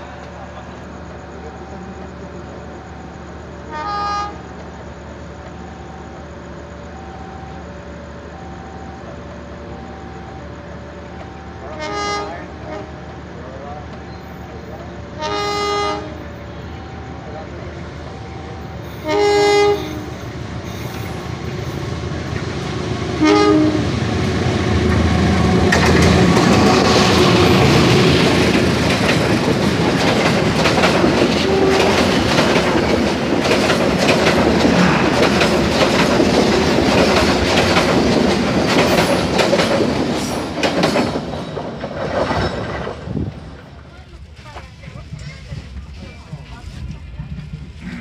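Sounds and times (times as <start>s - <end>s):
train rushing past: 0.0s - 48.0s
locomotive horn blasts: 3.6s - 4.5s, 11.3s - 13.1s, 15.1s - 16.4s, 19.0s - 20.3s, 23.2s - 24.0s, 31.4s - 32.0s
wheels clattering over rail joints: 24.1s - 48.0s.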